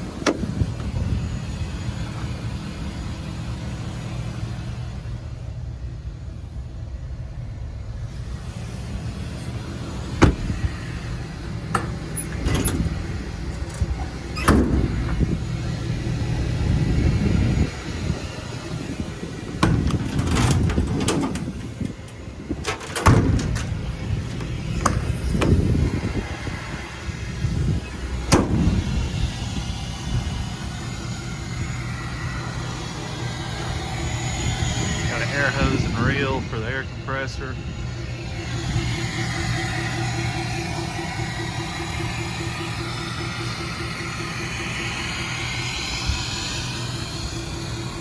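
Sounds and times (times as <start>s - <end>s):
doors and latches clacking: 0.0s - 1.0s, 10.0s - 16.0s, 19.4s - 26.2s
diesel engine idling: 0.0s - 48.0s.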